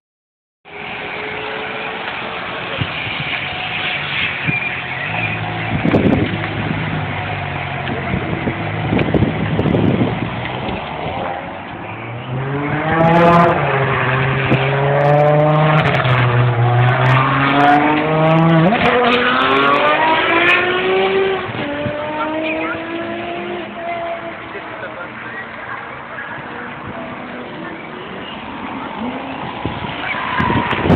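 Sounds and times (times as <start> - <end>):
sports car engine revving: 4.8 - 24.7.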